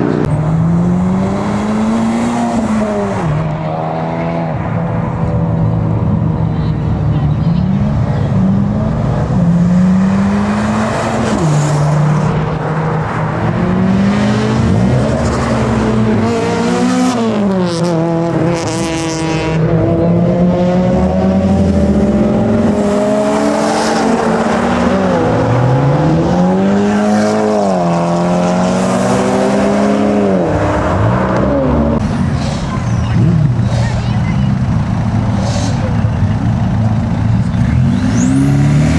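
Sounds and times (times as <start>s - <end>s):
car engines revving: 0.0s - 38.9s.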